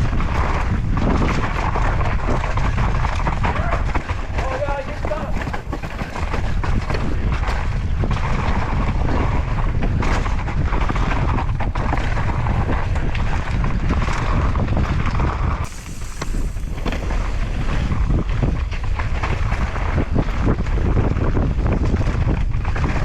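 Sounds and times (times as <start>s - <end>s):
wind rushing over microphone: 0.0s - 23.0s
bike tyre noise: 3.1s - 8.9s, 15.5s - 17.3s.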